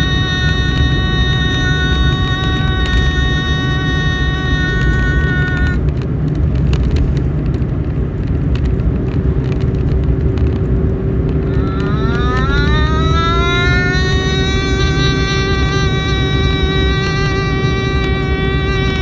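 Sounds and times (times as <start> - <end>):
faint low hum: 0.0 - 5.8, 11.3 - 19.0
sustained tone sliding upward: 0.0 - 5.8, 11.3 - 19.0.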